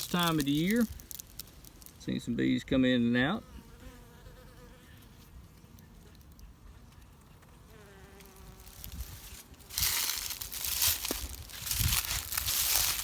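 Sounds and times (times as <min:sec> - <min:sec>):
loud rustling crackling noise: 0:00.0 - 0:02.0, 0:08.6 - 0:13.0.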